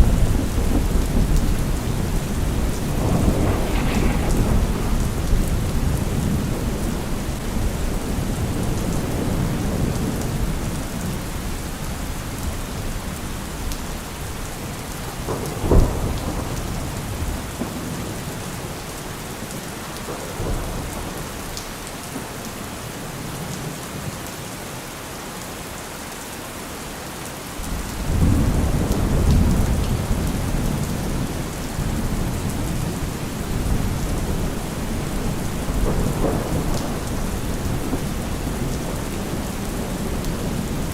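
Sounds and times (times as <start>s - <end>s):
sharp thunderclap: 0.0s - 9.9s, 15.0s - 18.7s, 31.8s - 40.9s
rolling thunder: 0.0s - 21.5s, 27.7s - 40.9s
heavy rain: 0.0s - 40.9s.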